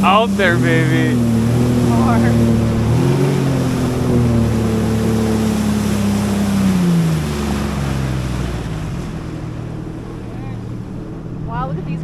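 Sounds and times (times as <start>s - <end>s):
jet ski engine running: 0.0s - 12.0s
wind: 0.0s - 12.0s.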